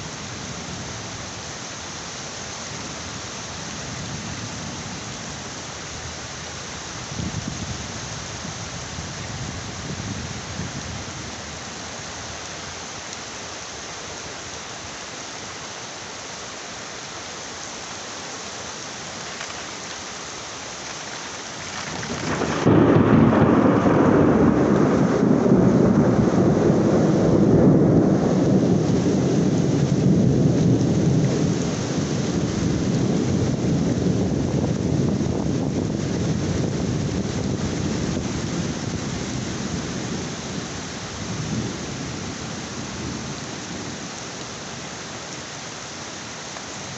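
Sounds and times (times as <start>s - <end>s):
heavy rain hissing: 0.0s - 46.9s
low rumble of thunder: 21.7s - 44.0s.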